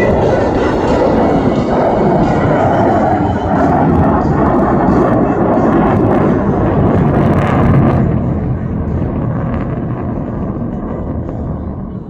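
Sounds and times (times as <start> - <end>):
jets rumbling overhead: 0.0 - 12.0.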